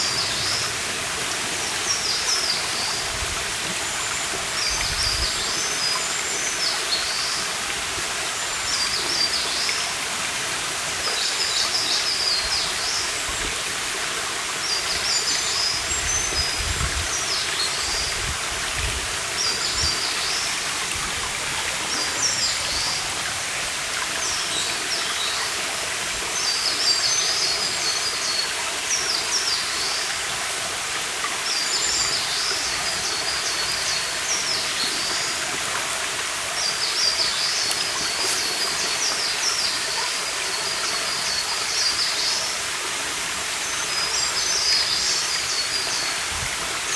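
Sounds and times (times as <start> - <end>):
stream running: 0.0 - 46.9
songbird twittering: 37.1 - 40.0.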